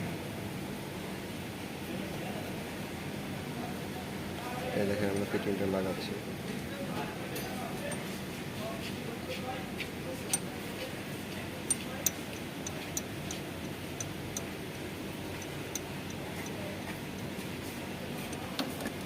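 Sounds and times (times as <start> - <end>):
tools clicking on metal pipe: 10.2 - 10.9, 11.6 - 17.5, 18.2 - 19.0.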